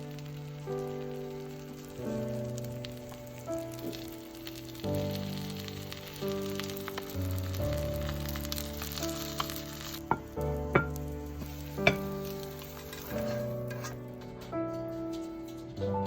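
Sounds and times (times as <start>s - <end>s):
food sizzling in a frying pan: 0.0s - 14.0s
soft background music: 0.0s - 16.0s.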